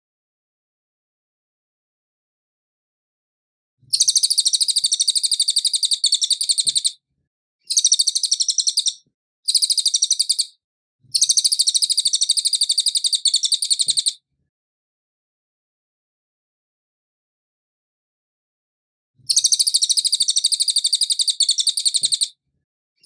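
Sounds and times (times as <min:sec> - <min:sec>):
songbird chattering: 0:03.9 - 0:07.0, 0:07.7 - 0:10.5, 0:11.2 - 0:14.2, 0:19.3 - 0:22.3.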